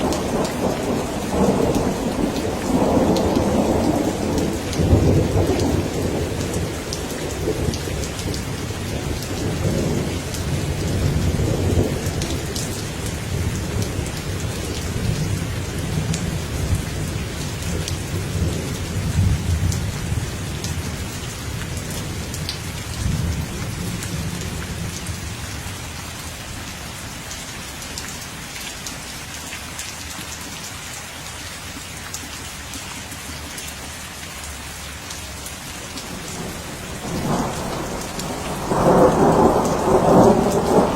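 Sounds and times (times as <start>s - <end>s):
rolling thunder: 0.0s - 21.0s, 35.9s - 40.9s
heavy rain falling: 0.0s - 40.9s.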